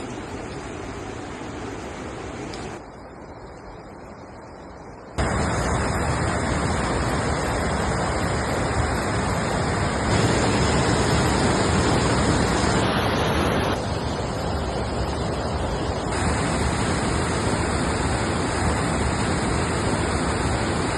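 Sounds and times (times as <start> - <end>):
waterfall rushing: 5.2 - 20.9.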